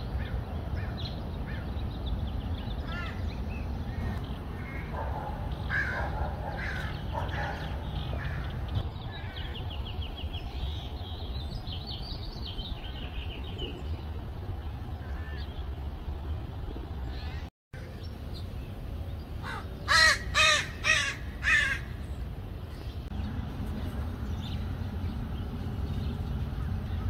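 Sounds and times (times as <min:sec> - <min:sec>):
birds calling: 0:00.0 - 0:27.0
caw-like calls: 0:02.8 - 0:03.2, 0:03.9 - 0:05.0, 0:05.6 - 0:09.6, 0:15.0 - 0:15.5, 0:19.4 - 0:22.0
steady low rumble: 0:21.2 - 0:27.0.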